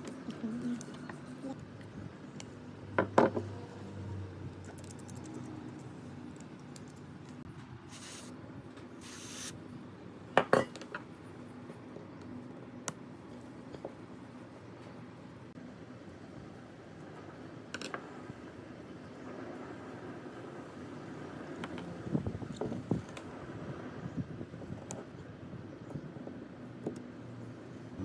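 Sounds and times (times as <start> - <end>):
short hisses: 7.9 - 8.3, 9.0 - 9.6.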